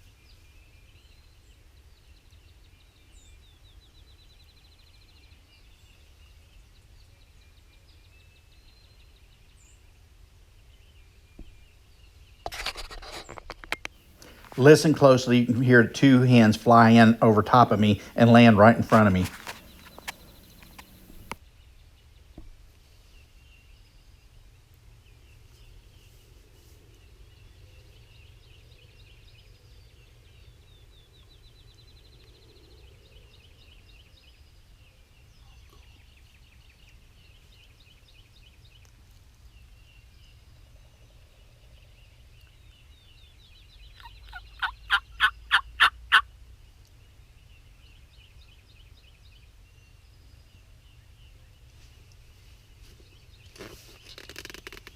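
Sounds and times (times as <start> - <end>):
songbirds singing: 0.1 - 9.8, 14.1 - 21.4, 24.9 - 54.9
heavy wingbeats of turkeys: 14.2 - 21.4, 44.3 - 46.2.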